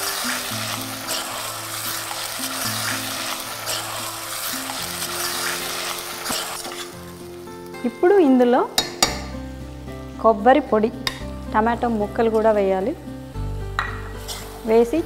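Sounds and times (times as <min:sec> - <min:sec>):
chicken sizzling in hot oil: 0:00.0 - 0:15.0
spatula scraping pot: 0:01.1 - 0:07.0, 0:14.2 - 0:14.6.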